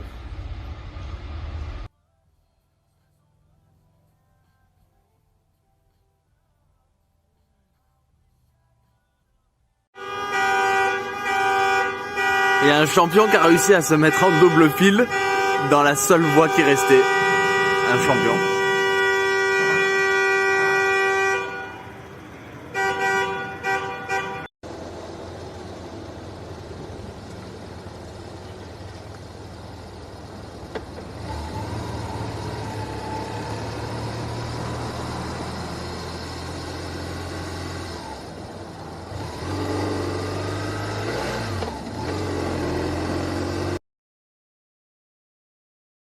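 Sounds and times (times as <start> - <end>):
car road and engine noise: 0.0 - 6.4, 9.4 - 43.8
car horn honking: 10.0 - 24.5.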